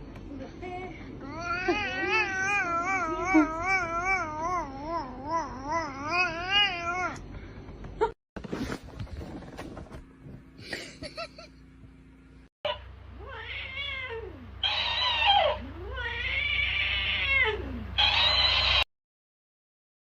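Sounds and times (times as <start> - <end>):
cat yowling: 12.7 - 18.8.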